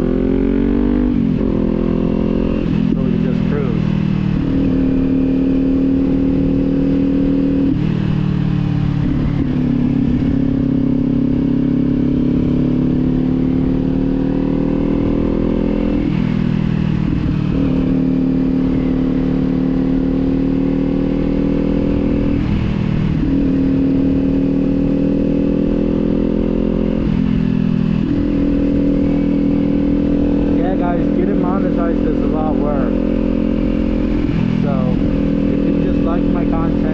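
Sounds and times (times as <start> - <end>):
wind rumble on microphone: 0.0 - 14.0, 20.8 - 26.3, 26.9 - 36.9
motorcycle engine cruising: 0.0 - 36.9.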